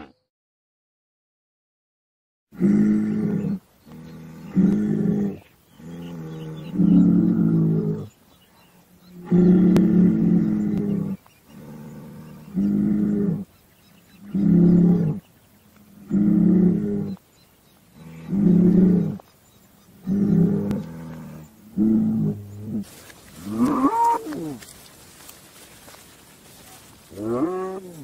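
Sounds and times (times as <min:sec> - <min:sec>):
cattle mooing: 0:09.2 - 0:13.4, 0:20.1 - 0:24.8, 0:26.6 - 0:28.0.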